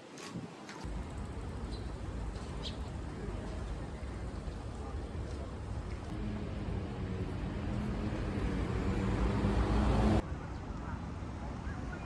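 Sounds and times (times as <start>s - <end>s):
engine low hum: 0.9s - 10.2s.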